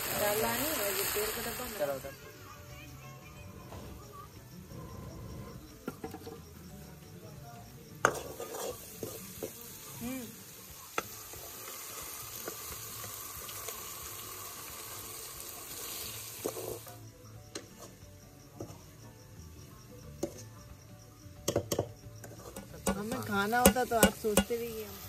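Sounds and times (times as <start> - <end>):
masala sizzling in a pan: 0.0 - 25.0
ladle knocking against pan: 21.5 - 24.6.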